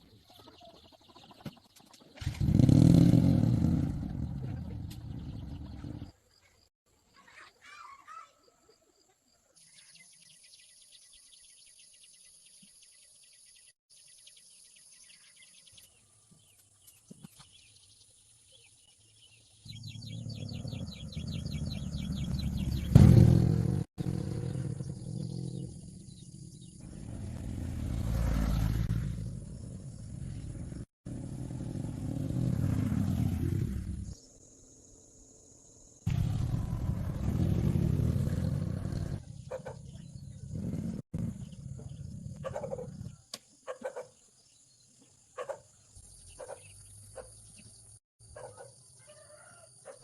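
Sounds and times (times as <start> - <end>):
birds chirping: 0.0 - 50.0
insects chirping: 34.0 - 36.1.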